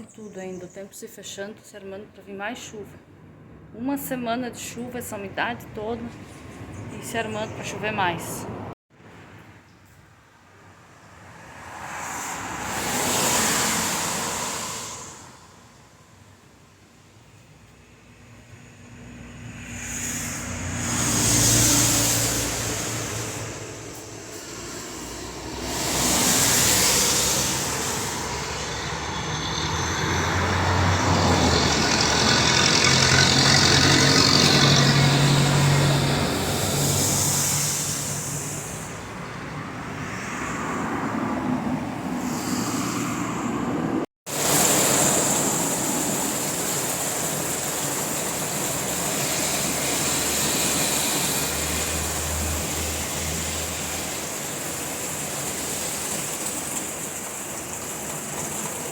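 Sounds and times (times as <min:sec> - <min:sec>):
vehicles passing: 0:02.8 - 0:58.9
heavy vehicle engine hum: 0:18.2 - 0:58.8.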